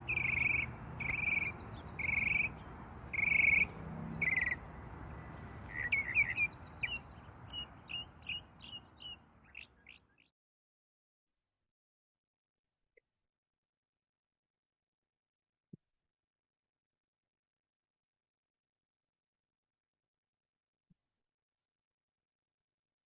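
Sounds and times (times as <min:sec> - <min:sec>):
short sharp bird chirps: 0:00.0 - 0:04.6
birds calling: 0:00.0 - 0:10.1.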